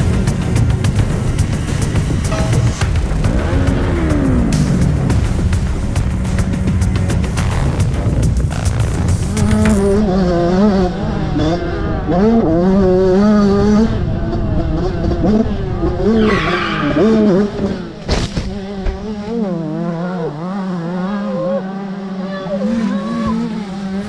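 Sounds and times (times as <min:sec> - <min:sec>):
sharp bang: 0:00.0 - 0:10.2
motorcycle engine revving: 0:00.0 - 0:24.0.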